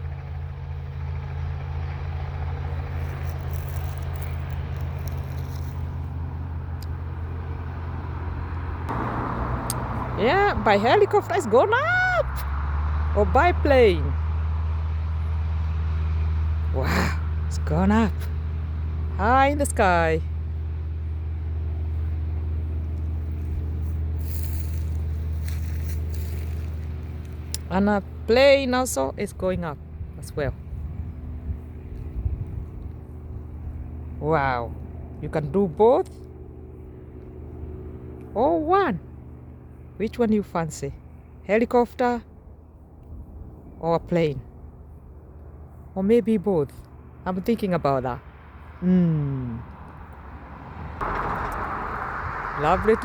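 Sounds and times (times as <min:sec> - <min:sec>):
engine humming: 0:00.0 - 0:53.0
light rustling: 0:22.9 - 0:27.5.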